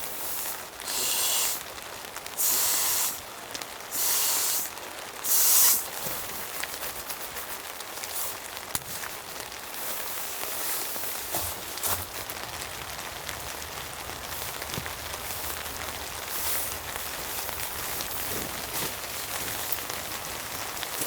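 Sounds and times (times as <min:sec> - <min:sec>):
rain pattering: 0:00.0 - 0:21.0
short bursts of hiss: 0:00.1 - 0:01.7, 0:02.4 - 0:03.2, 0:03.9 - 0:06.2.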